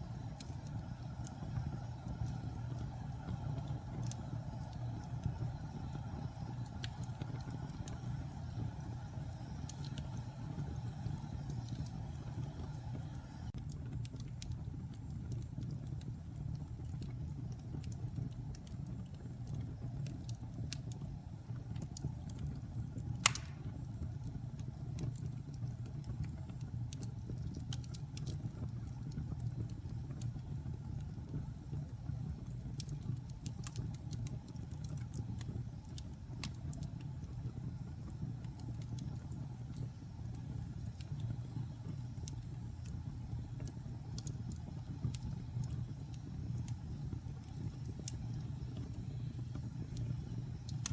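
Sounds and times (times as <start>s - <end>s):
campfire burning: 0.0s - 50.9s
logs crackling: 23.2s - 23.7s
loud fire pop: 23.2s - 23.8s.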